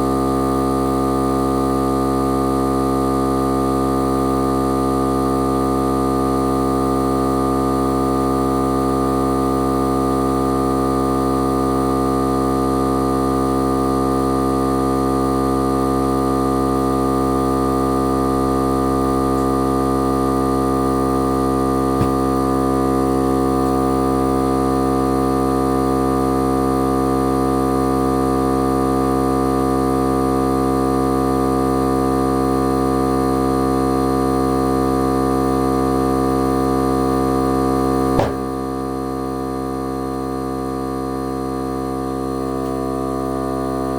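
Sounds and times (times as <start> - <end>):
sharp click: 22.0 - 22.2, 38.2 - 38.5
air compressor running: 22.0 - 22.4.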